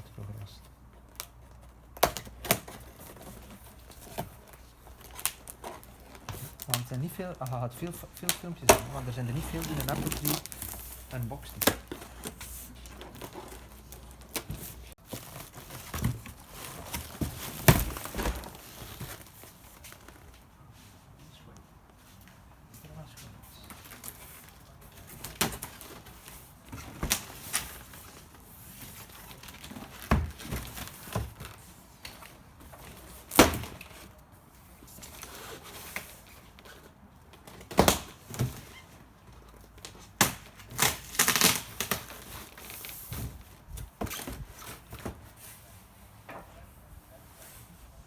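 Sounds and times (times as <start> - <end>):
wrapping crinkling and tearing: 3.8 - 20.3, 39.4 - 43.0.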